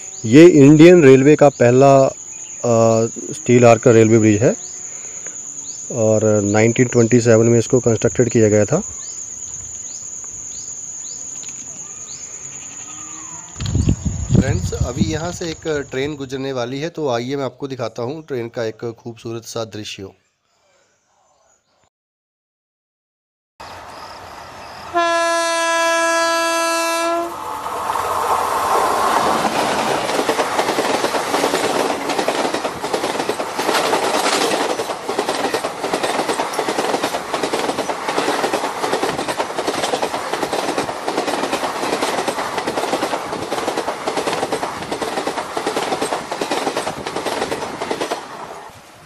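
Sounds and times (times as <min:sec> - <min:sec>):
locomotive horn blast: 0:24.8 - 0:27.5
train wheels clattering on rails: 0:27.8 - 0:48.7.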